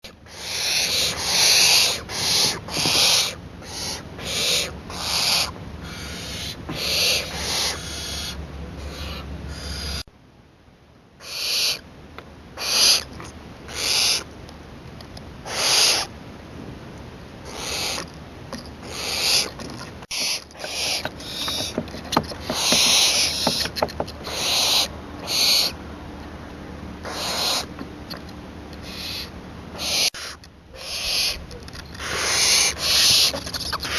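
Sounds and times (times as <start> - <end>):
young owl hissing screeches: 0.3 - 10.1, 11.2 - 11.8, 12.6 - 13.1, 13.7 - 14.3, 15.5 - 16.1, 17.5 - 18.1, 18.9 - 21.8, 22.4 - 23.6, 24.2 - 25.8, 27.0 - 27.7, 28.8 - 31.4, 32.0 - 33.9.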